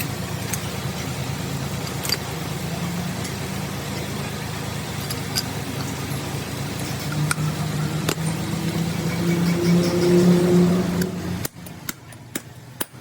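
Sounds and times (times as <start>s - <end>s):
low motor hum: 0.0s - 13.0s
sharp metallic clicks: 6.8s - 13.0s.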